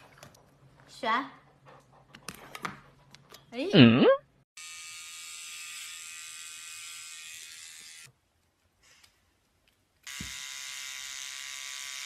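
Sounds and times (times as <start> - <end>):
electric pet trimmer buzzing: 4.6 - 8.1, 10.0 - 12.0.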